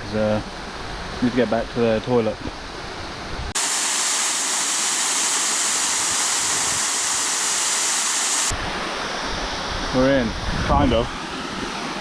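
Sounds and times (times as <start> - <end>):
waterfall rushing: 3.6 - 8.6.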